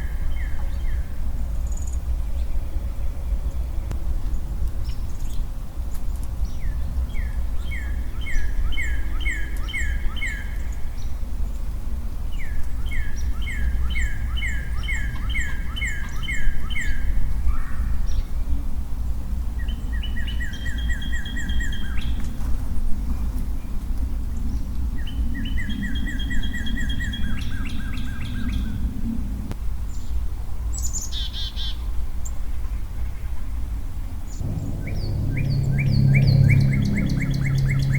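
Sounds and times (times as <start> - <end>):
songbird singing: 0.0 - 5.5, 6.1 - 11.7, 12.3 - 18.6, 19.6 - 22.2, 24.4 - 28.8, 34.3 - 37.9
low rumble: 34.4 - 37.9.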